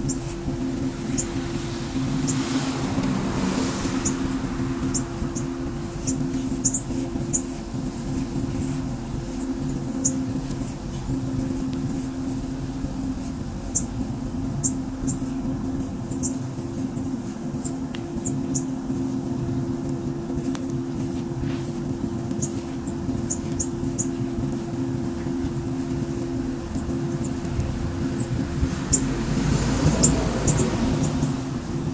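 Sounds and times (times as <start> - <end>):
small birds chirping: 0.0 - 3.0, 3.6 - 10.3, 13.6 - 18.8, 22.4 - 31.4
steady low hum: 0.0 - 31.9.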